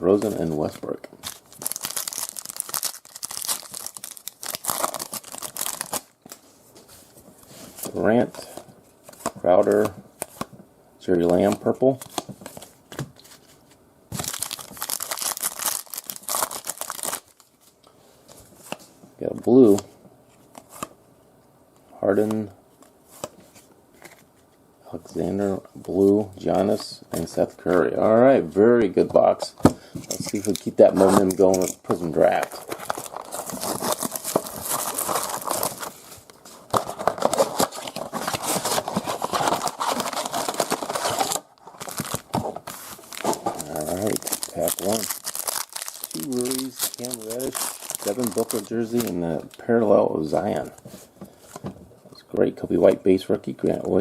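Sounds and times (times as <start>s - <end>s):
card pack wrapper crinkling and tearing: 0.1s - 6.4s, 14.1s - 17.5s, 30.0s - 49.6s.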